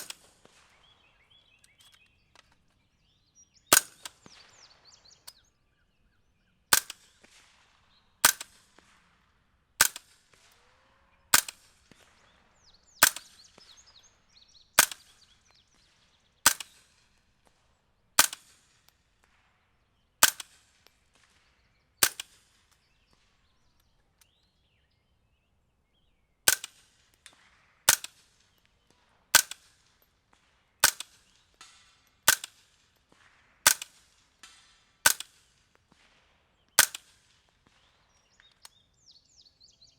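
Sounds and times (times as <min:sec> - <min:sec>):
suppressed gunshots: 0:00.0 - 0:00.9, 0:03.7 - 0:04.9, 0:06.7 - 0:09.2, 0:09.8 - 0:10.7, 0:11.3 - 0:13.9, 0:14.8 - 0:15.3, 0:16.4 - 0:17.2, 0:18.2 - 0:18.7, 0:20.2 - 0:21.4, 0:22.0 - 0:23.2, 0:26.5 - 0:38.2.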